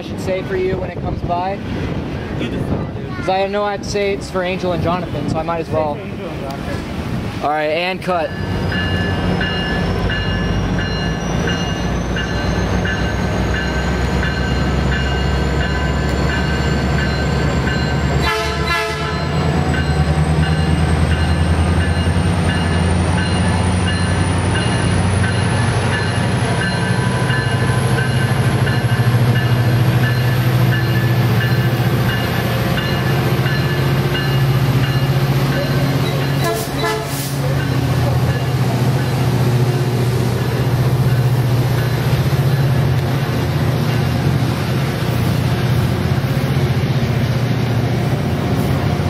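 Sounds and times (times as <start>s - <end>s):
diesel locomotive engine rumble: 0.0s - 49.0s
locomotive bell ringing: 7.9s - 43.0s.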